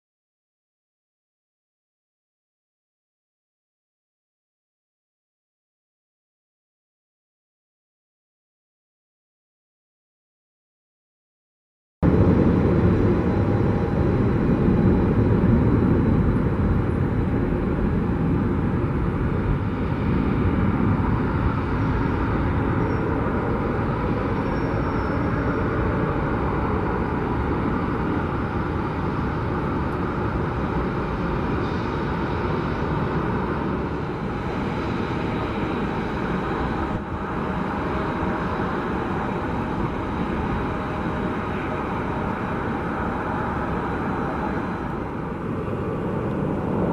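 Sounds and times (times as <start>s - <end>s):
jet engines running: 12.0s - 46.9s.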